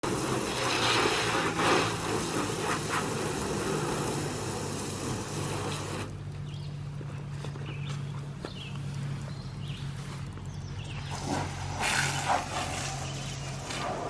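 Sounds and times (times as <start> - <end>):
broad hiss: 0.0 - 6.1, 11.1 - 14.0
vehicle engine running: 0.0 - 14.0.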